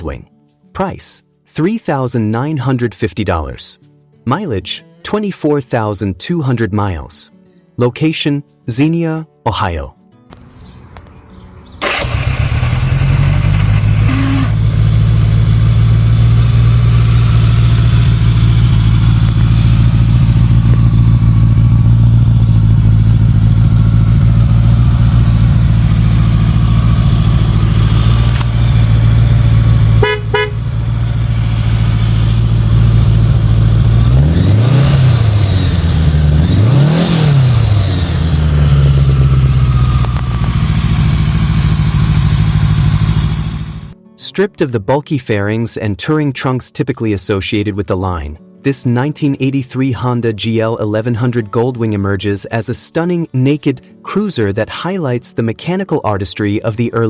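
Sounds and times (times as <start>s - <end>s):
click: 10.3s - 11.2s, 28.2s - 28.5s, 40.0s - 40.4s
engine revving: 11.8s - 44.0s
motorcycle engine idling: 11.8s - 44.0s.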